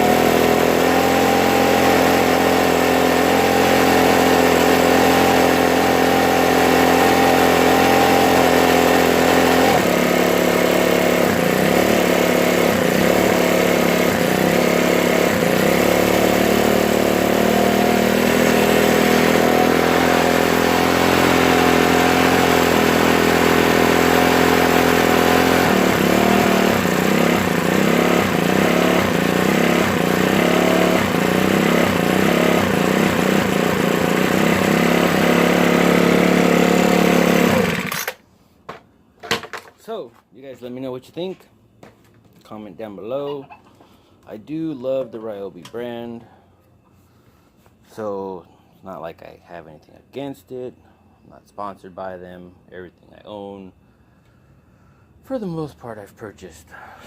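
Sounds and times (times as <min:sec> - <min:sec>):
leaf blower engine running: 0:00.0 - 0:38.2.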